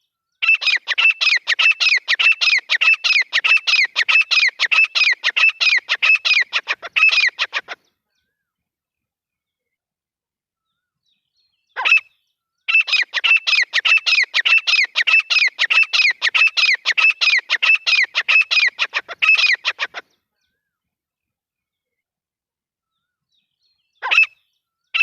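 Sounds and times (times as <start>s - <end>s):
bird calling sharp repeated notes: 0.4s - 7.8s, 11.7s - 20.2s, 24.0s - 25.0s.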